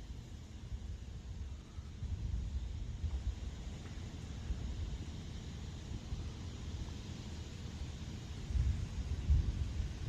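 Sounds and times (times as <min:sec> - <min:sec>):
wind buffeting microphone: 0:08.4 - 0:10.0.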